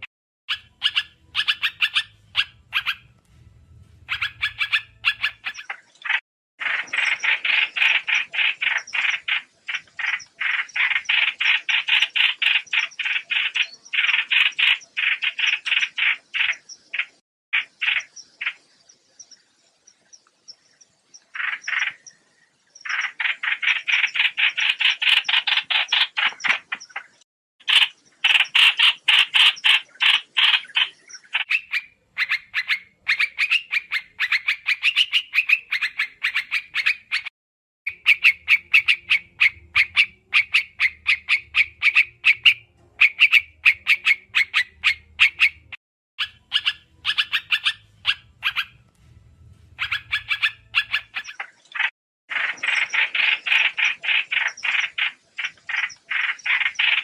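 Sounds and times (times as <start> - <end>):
birds twittering: 0.0 - 37.3, 37.9 - 57.0.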